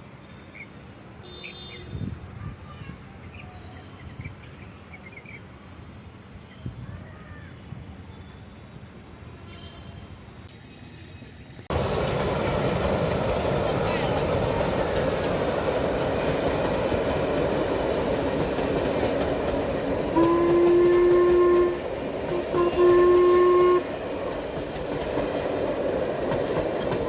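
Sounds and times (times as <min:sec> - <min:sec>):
train rumbling on rails: 0:00.0 - 0:27.0
train horn blasts: 0:20.1 - 0:24.0.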